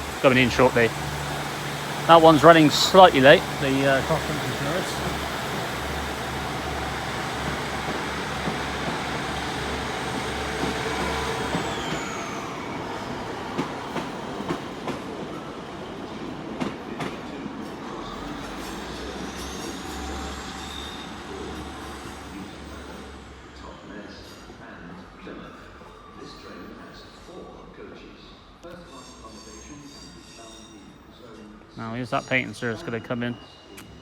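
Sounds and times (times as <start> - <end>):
train rumbling: 0.0 - 25.2
wheel squeal: 18.0 - 24.5, 28.2 - 31.6.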